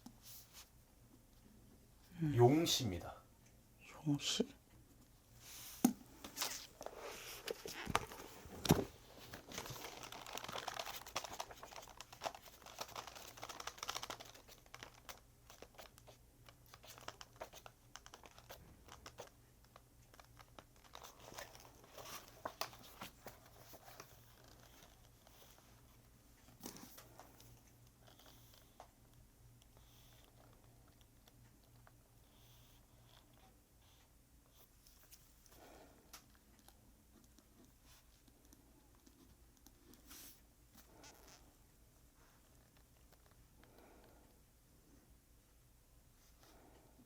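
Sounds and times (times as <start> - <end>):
paper rustling and crinkling: 5.6 - 19.3, 20.1 - 25.8.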